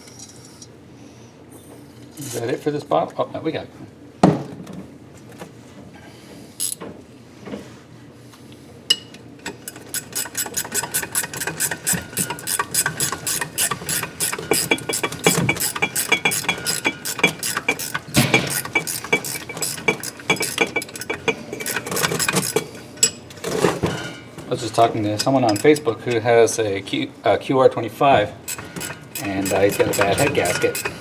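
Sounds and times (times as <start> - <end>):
ratchet wrench clicking: 6.6 - 6.8, 9.4 - 23.2, 28.5 - 31.0.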